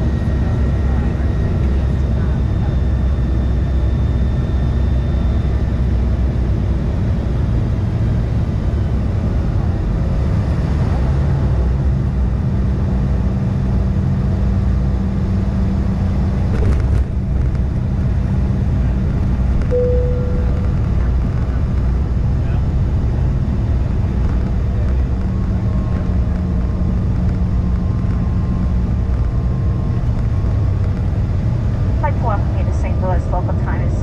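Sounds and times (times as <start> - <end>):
jet cabin engine rumble: 0.0 - 34.0
short steady tone: 19.7 - 21.0.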